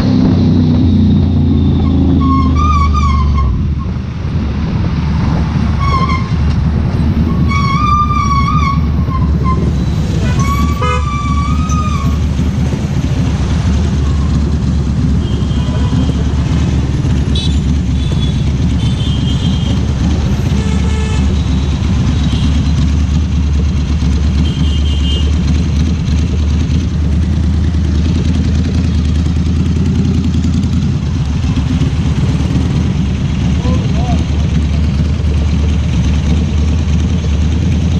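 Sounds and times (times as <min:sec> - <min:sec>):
motorcycle engine rumble: 0:00.0 - 0:37.9
vehicle horns honking: 0:07.4 - 0:12.1, 0:15.0 - 0:16.5, 0:17.2 - 0:22.9, 0:24.3 - 0:25.4.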